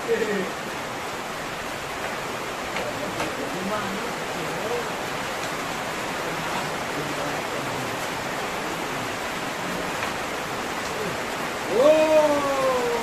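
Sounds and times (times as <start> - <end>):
heavy rain hissing: 0.0 - 13.0
person crying out: 11.7 - 13.0.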